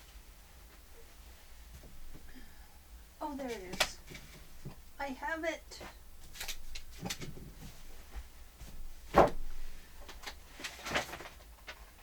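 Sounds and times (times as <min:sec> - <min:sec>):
loud thump: 0:09.1 - 0:09.6.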